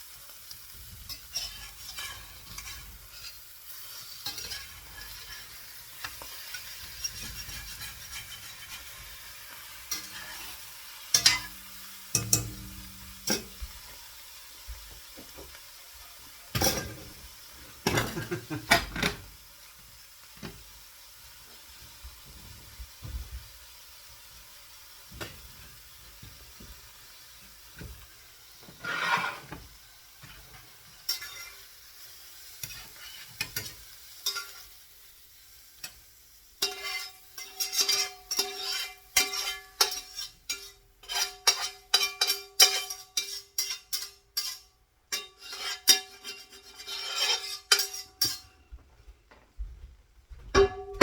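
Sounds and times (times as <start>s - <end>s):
metal utensil scraping frying pan: 0.1s - 14.2s, 16.6s - 19.4s, 28.4s - 34.8s, 35.5s - 48.7s.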